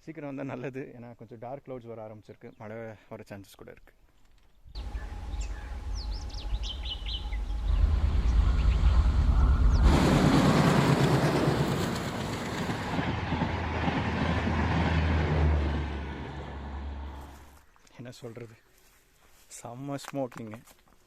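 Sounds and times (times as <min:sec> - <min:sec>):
birds chirping: 0:04.4 - 0:14.0
train wheel noise: 0:04.8 - 0:17.4
diesel locomotive engine rumble: 0:04.8 - 0:17.5.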